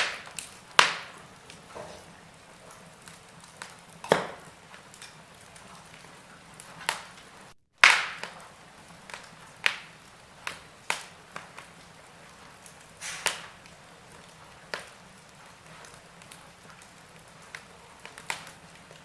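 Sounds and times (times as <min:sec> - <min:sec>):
wood fire crackling: 0:00.0 - 0:19.0
low hiss: 0:08.2 - 0:19.0.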